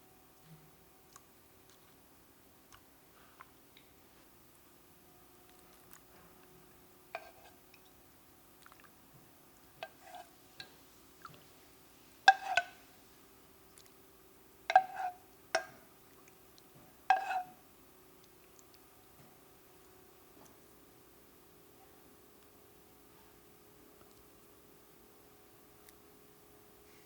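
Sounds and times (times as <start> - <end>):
faint steady hum: 0.0 - 27.0
faint liquid sounds: 0.3 - 4.4, 5.3 - 19.8
spoon knocking glass dish: 12.3 - 12.8, 14.7 - 15.8, 17.1 - 17.5.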